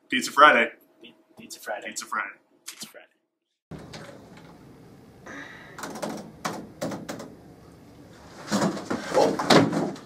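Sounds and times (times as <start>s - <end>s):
sharp clicks and knocks: 5.8s - 7.4s.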